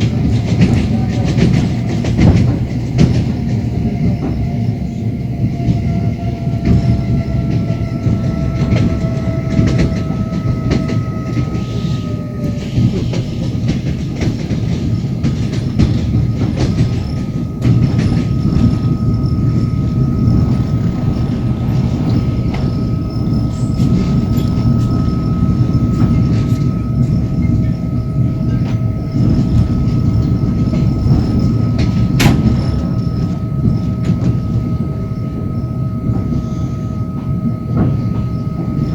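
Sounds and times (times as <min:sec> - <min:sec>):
train carriage rumble: 0:00.0 - 0:38.9
steady high tone: 0:07.1 - 0:38.9
wheels clattering over rail joints: 0:12.6 - 0:36.3.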